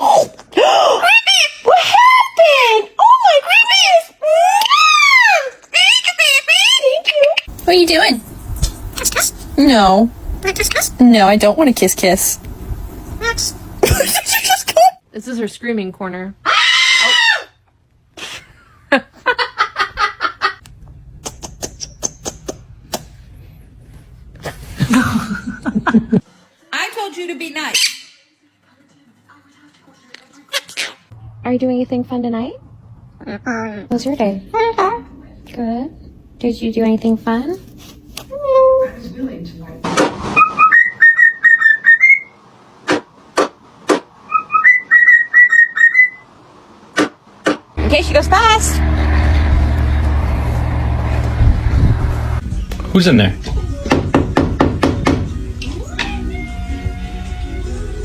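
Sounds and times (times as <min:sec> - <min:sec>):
parrot screeching: 0:16.4 - 0:17.6, 0:27.7 - 0:28.3, 0:40.4 - 0:42.4, 0:44.3 - 0:46.2.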